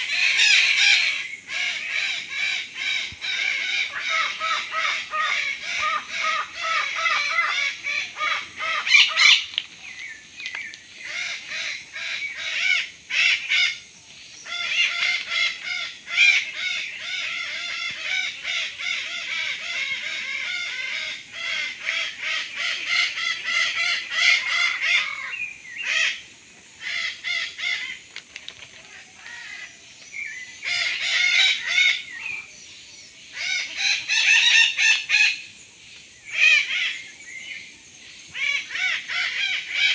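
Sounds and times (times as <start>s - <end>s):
parrots screeching and squawking: 0.0s - 9.5s.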